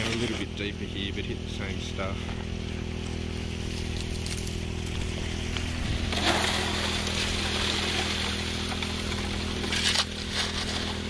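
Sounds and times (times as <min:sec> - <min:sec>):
water pump engine running: 0:00.0 - 0:11.0.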